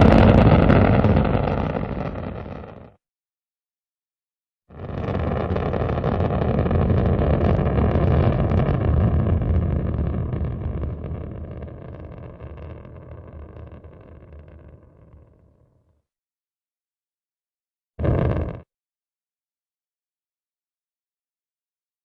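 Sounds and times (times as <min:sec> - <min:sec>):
rocket launch rumble: 0:00.0 - 0:03.0, 0:04.7 - 0:15.5, 0:18.0 - 0:18.7.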